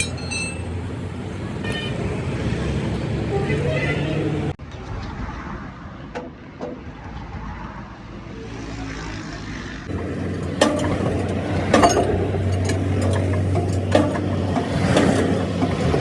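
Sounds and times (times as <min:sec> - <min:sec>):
road vehicle rumble: 0:00.0 - 0:16.0
sharp metallic clanks: 0:09.9 - 0:16.0.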